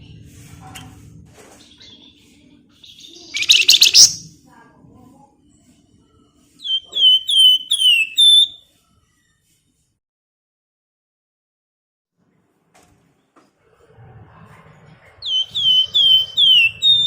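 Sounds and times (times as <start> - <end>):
songbird scratchy chatter: 1.6 - 4.3, 6.6 - 8.6, 15.2 - 17.0
songbird whistled notes: 2.9 - 4.3, 6.6 - 8.7, 15.2 - 17.0.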